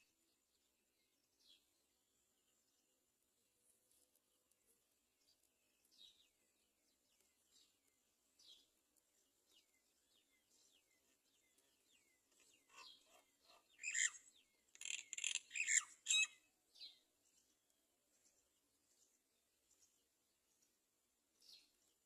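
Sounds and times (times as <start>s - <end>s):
bird chirping: 0.0s - 22.0s
bird squawking: 12.7s - 14.2s, 14.8s - 16.4s.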